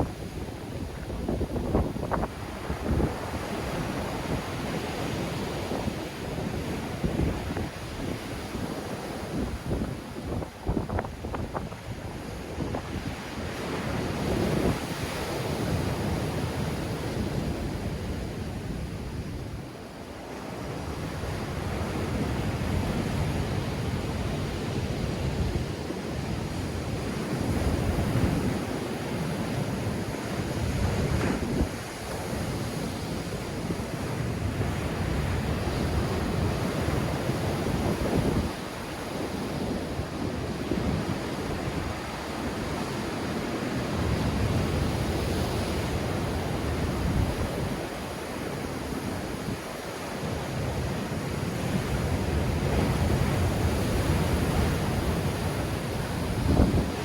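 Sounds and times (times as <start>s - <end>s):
wind buffeting microphone: 0.0s - 19.7s, 20.8s - 57.0s
waves breaking on shore: 0.0s - 57.0s.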